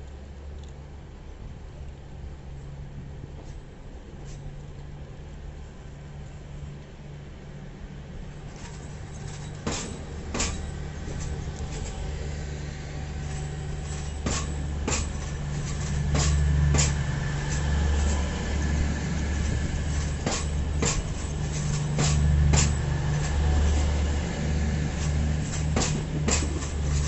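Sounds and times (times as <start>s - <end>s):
train engine rumbling: 0.0s - 27.0s
train wheels clacking over joints: 8.4s - 27.0s.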